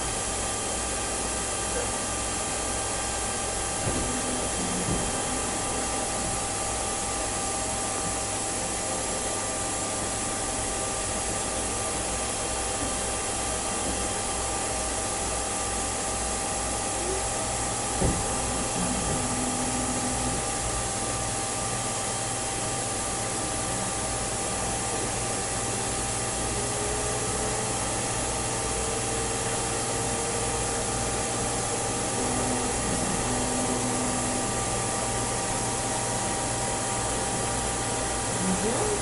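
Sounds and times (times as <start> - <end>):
machine tool whirring: 2.9 - 7.5, 16.8 - 36.6.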